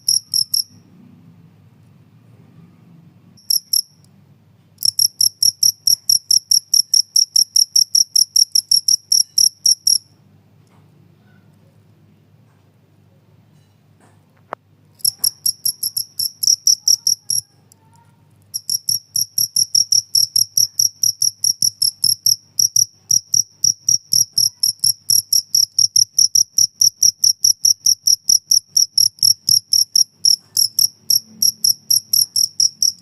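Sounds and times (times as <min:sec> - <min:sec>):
cricket chirping: 0:00.0 - 0:00.8, 0:03.4 - 0:04.1, 0:04.8 - 0:10.2, 0:15.0 - 0:17.5, 0:18.5 - 0:33.0.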